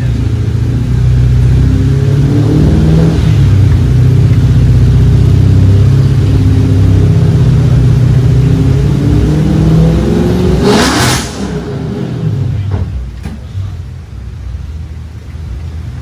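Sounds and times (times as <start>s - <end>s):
engine running loudly: 0.0s - 12.8s.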